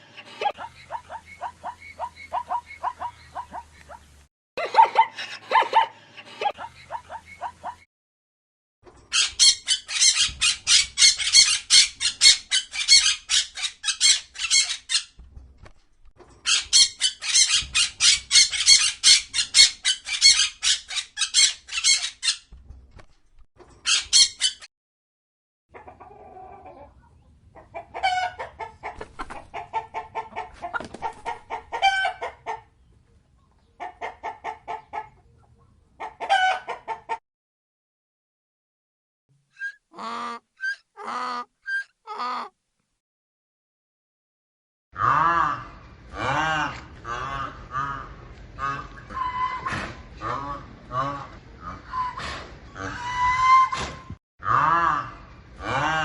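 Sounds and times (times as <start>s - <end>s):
chickens clucking: 0.0s - 7.9s, 25.7s - 37.2s, 46.2s - 53.9s.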